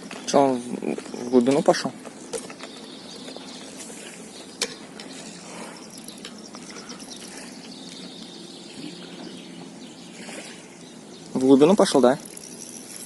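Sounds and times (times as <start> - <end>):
fishing reel ratcheting: 5.8 - 7.6, 11.8 - 13.0.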